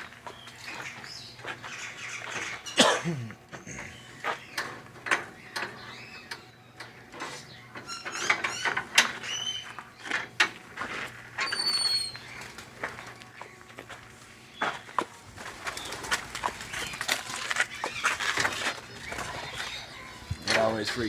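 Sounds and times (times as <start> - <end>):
birds chirping: 0.0 - 21.0
whistled bird call: 11.4 - 12.2.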